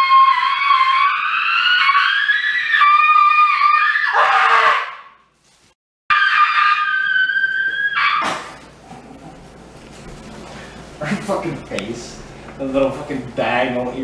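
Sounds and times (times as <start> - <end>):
cat yowling: 0.0 - 5.1, 6.1 - 8.6.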